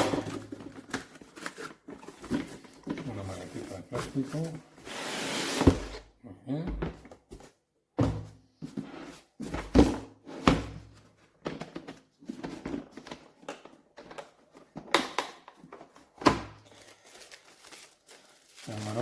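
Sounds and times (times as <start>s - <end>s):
handling rustle: 16.8s - 19.0s.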